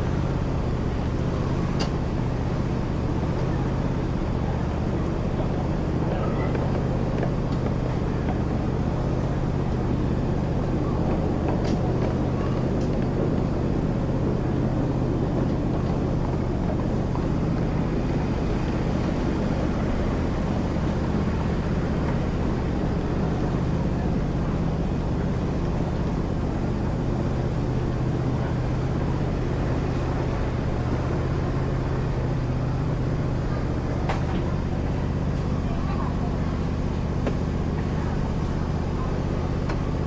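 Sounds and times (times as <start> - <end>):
ride train engine hum: 0.0 - 40.0
rumbling travel noise: 0.0 - 40.0.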